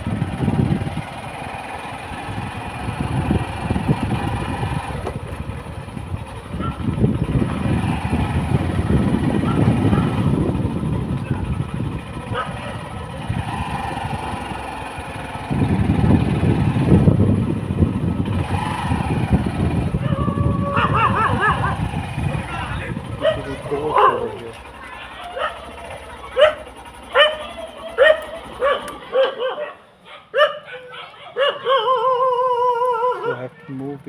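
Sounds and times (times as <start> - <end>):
wind buffeting microphone: 0.0 - 1.4, 2.0 - 24.5
motorcycle running: 0.0 - 34.0.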